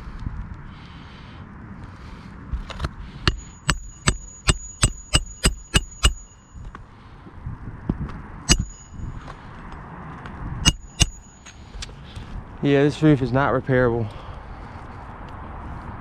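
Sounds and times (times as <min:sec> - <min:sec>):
sharp metallic clicks: 0:02.7 - 0:06.4, 0:08.5 - 0:09.0, 0:10.6 - 0:11.9.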